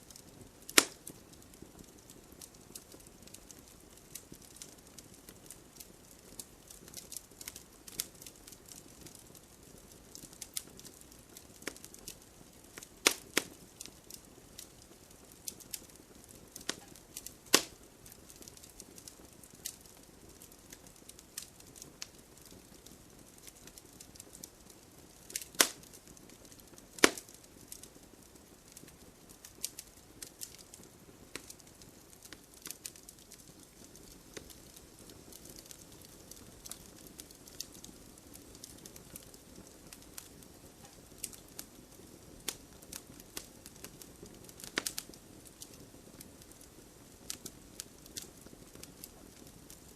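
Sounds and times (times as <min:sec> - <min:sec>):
loud sharp fire snaps: 0:00.0 - 0:49.9
wood fire crackling: 0:00.0 - 0:49.9.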